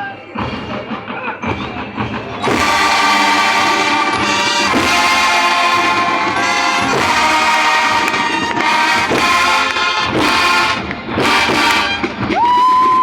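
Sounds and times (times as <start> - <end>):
marching band drum beats: 0.0 - 13.0
wind section sustained chords: 2.5 - 12.2.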